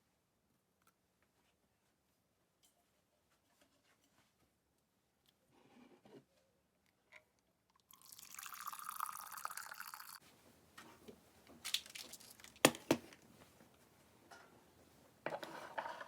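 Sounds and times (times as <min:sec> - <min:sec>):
liquid pouring: 0:07.8 - 0:10.2.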